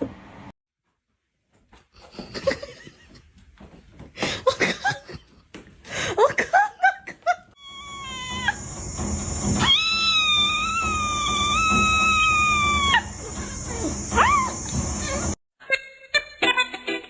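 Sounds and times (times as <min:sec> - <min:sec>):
cat yowling: 0:07.6 - 0:08.6, 0:09.6 - 0:15.4.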